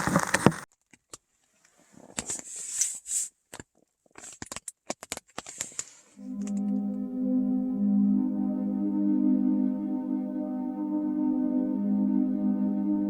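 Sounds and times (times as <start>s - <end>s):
short rustling bursts: 1.5s - 3.4s
ambient music with singing-bowl drone: 6.2s - 13.0s.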